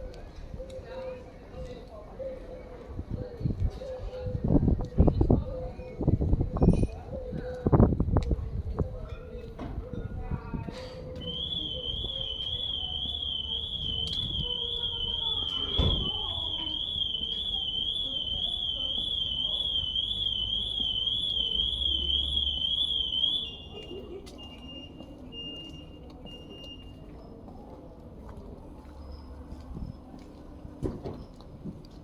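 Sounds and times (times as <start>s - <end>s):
warbling electronic alarm: 11.2s - 23.8s
short low beeps: 11.2s - 27.2s.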